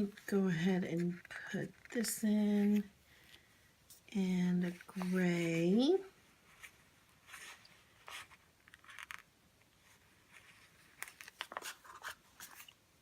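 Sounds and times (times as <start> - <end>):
paper stickers rustling: 10.3 - 12.7.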